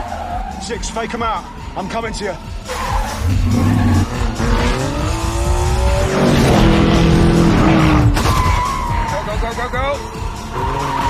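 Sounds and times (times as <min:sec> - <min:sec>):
car engine revving hard: 0:03.1 - 0:08.2.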